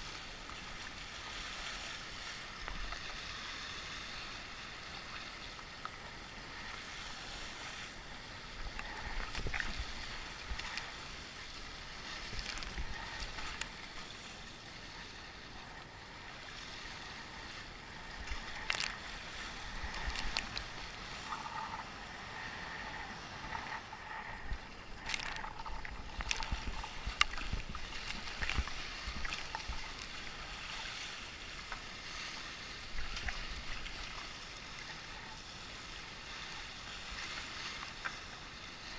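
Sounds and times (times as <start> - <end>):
water rushing around kayak: 0.0 - 38.9
wind rumble on microphone: 6.2 - 14.0, 14.8 - 34.3.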